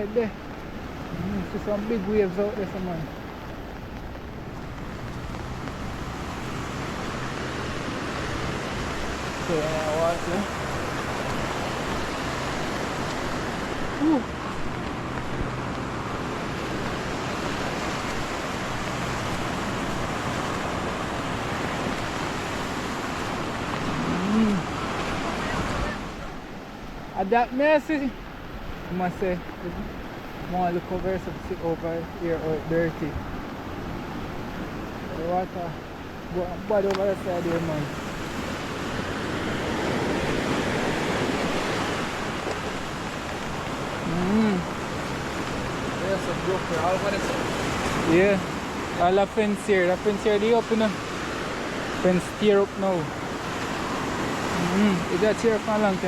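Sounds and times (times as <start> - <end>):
surf breaking on shore: 0.0 - 56.0
wind buffeting microphone: 35.8 - 56.0.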